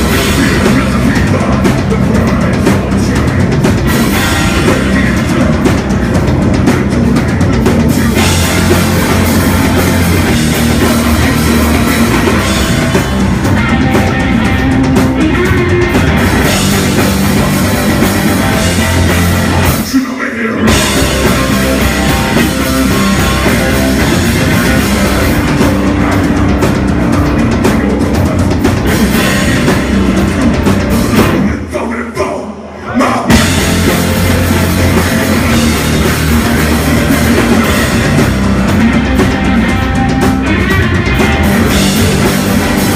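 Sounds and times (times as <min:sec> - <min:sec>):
drum kit: 0:00.0 - 0:31.8, 0:33.0 - 0:42.9
rock band playing live: 0:00.0 - 0:31.8, 0:33.0 - 0:42.9.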